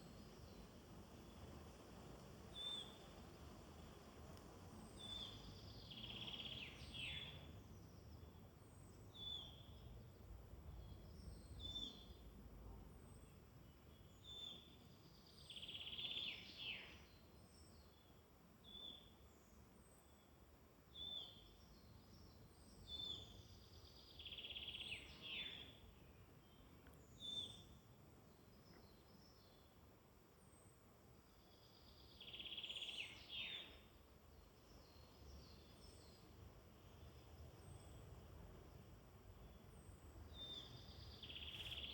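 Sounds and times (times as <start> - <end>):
faint very high bird calls: 2.5 - 3.1, 4.8 - 7.5, 14.0 - 20.3, 22.6 - 27.8, 31.3 - 34.0, 39.4 - 41.9.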